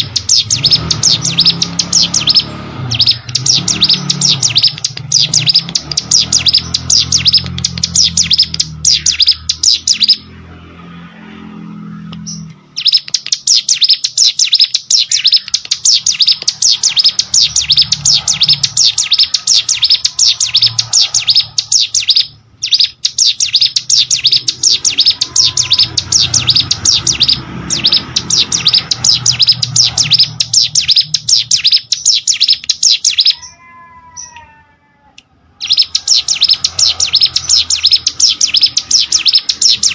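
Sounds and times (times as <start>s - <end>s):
bird singing high fast chirps: 0.0s - 34.4s, 35.4s - 39.9s.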